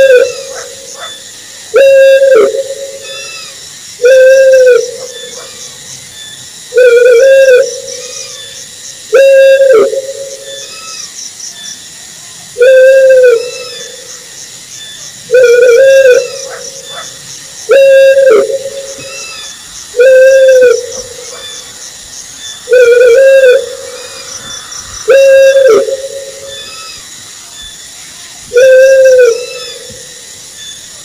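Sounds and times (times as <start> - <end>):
owl hooting: 0.0 - 5.7, 6.7 - 11.1, 12.6 - 14.1, 15.3 - 21.8, 22.6 - 27.0, 28.5 - 30.1.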